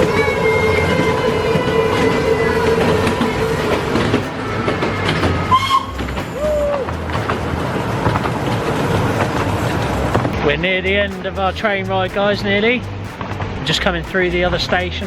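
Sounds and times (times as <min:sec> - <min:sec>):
train wheels clattering on rails: 0:00.0 - 0:10.4
carriages rattling: 0:00.0 - 0:15.0.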